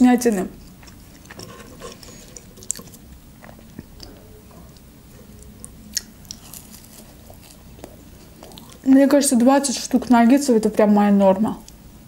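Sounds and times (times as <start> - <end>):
wet chewing mouth sounds: 0.6 - 8.9.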